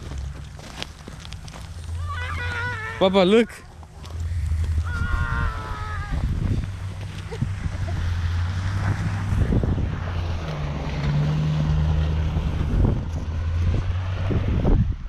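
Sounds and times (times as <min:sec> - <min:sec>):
vehicle engine humming: 0:00.0 - 0:15.0
wind buffeting microphone: 0:03.5 - 0:15.0.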